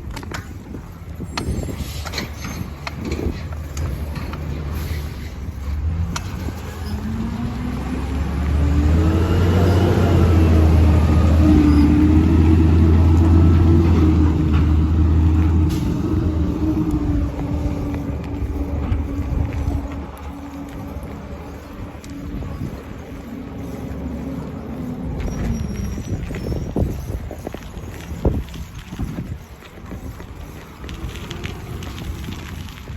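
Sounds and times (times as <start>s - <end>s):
truck engine speeding up: 2.9s - 27.1s.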